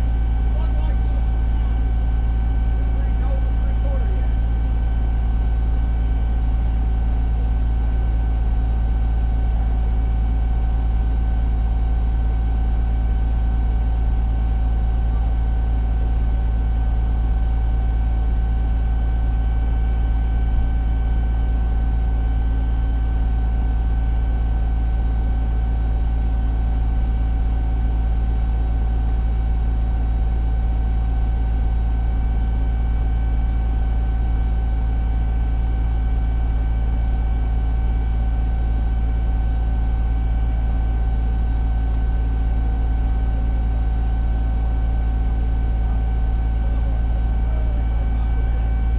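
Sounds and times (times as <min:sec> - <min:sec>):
diesel engine droning: 0:00.0 - 0:05.3, 0:46.2 - 0:48.9.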